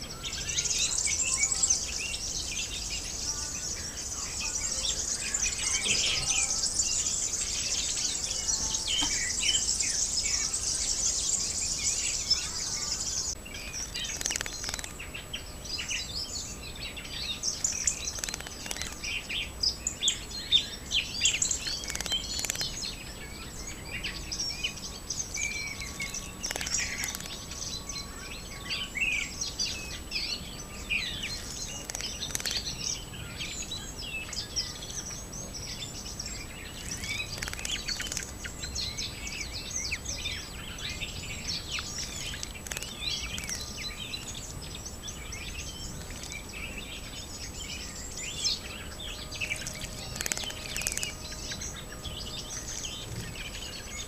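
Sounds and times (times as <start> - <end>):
small birds chirping: 0.0 - 54.0
high-pitched insect buzz: 49.3 - 52.9.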